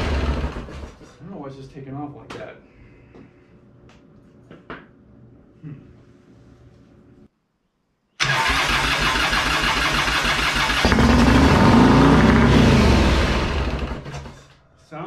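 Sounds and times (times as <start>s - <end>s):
motorcycle engine revving: 0.0s - 0.9s, 8.4s - 14.3s
starter motor cranking: 8.2s - 14.5s.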